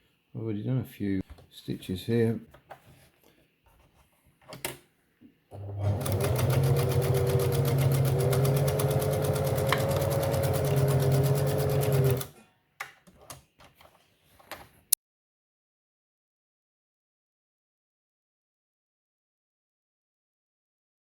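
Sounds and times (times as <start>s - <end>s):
sewing machine running: 5.5s - 12.3s.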